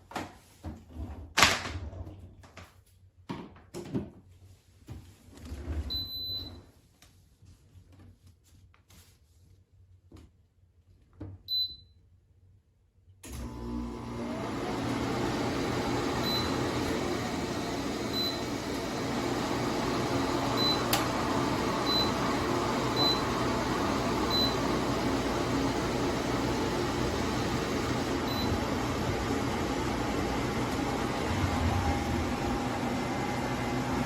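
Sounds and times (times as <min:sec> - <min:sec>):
air cooler rushing and humming: 0:13.3 - 0:34.0.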